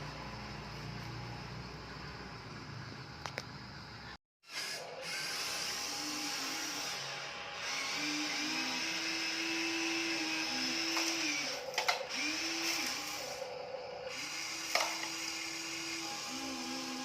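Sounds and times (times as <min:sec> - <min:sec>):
small electric motors whining: 0:04.4 - 0:17.0.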